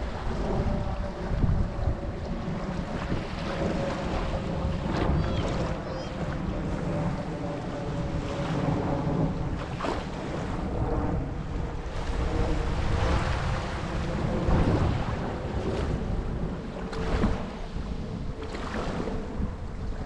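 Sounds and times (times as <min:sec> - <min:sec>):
wind buffeting microphone: 0:00.0 - 0:20.0
surf washing onto beach: 0:08.1 - 0:19.4.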